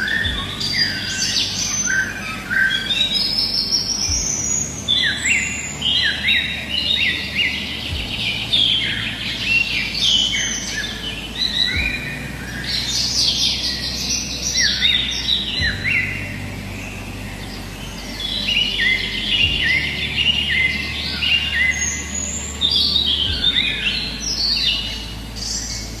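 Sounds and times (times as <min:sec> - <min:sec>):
birds chirping and singing: 0:00.0 - 0:26.0.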